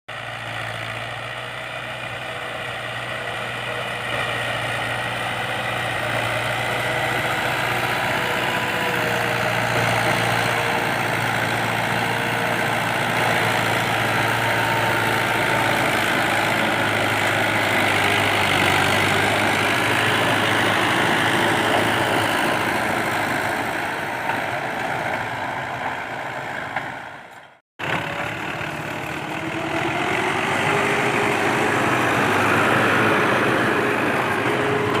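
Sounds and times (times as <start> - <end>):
tractor diesel engine running: 0.1 - 35.0.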